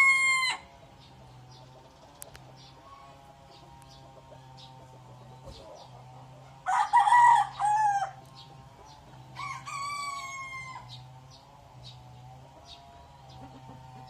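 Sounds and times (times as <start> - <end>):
rooster crowing: 0.0 - 0.7, 6.6 - 8.2, 9.3 - 11.0
steady low hum: 0.0 - 14.0.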